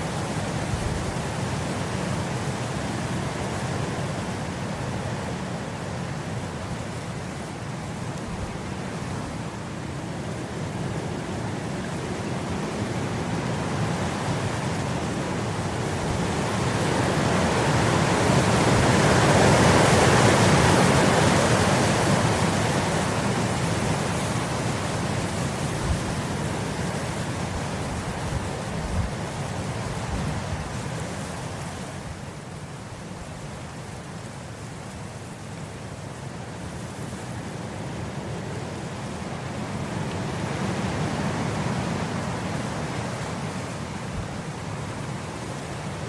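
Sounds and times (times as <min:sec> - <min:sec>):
wind blowing across grass: 0:00.0 - 0:46.0.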